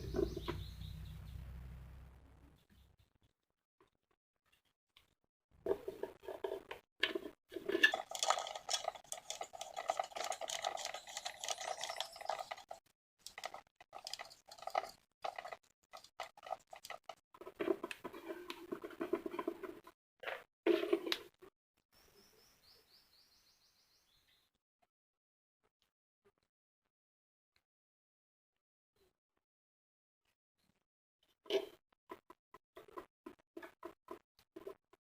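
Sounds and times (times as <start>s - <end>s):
small plastic parts clicking and clattering: 5.7s - 21.3s.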